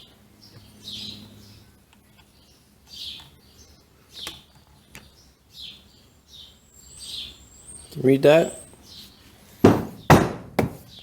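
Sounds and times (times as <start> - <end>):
bird chirping: 0.0 - 10.2.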